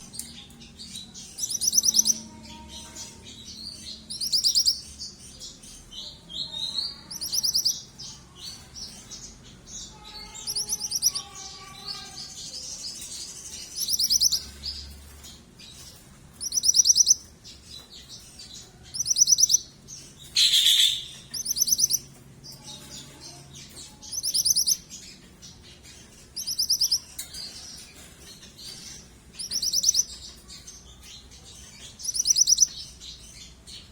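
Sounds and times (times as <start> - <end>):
bird calling with high trills: 20.3 - 22.0.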